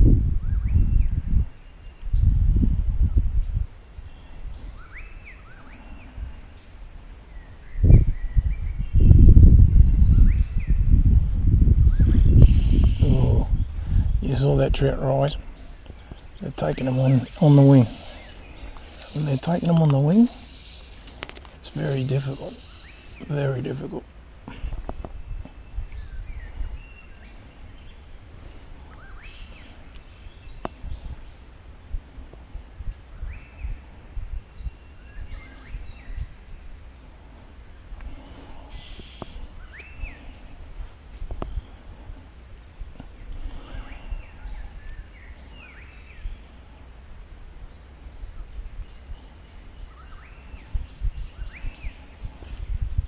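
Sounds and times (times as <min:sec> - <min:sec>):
wind on microphone: 0:00.0 - 0:23.3, 0:24.4 - 0:53.0
steady low rumble: 0:00.0 - 0:53.0
birds whistled calls: 0:04.1 - 0:06.7, 0:09.8 - 0:10.8, 0:11.8 - 0:14.3, 0:15.6 - 0:21.2, 0:21.8 - 0:23.3, 0:28.8 - 0:31.4, 0:33.1 - 0:36.8, 0:38.0 - 0:40.8, 0:43.2 - 0:46.5, 0:48.3 - 0:52.2.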